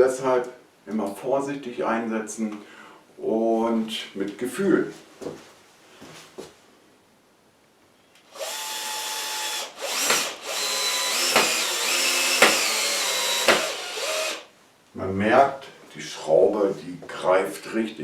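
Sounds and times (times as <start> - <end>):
power drill driving a screw: 8.3 - 14.5.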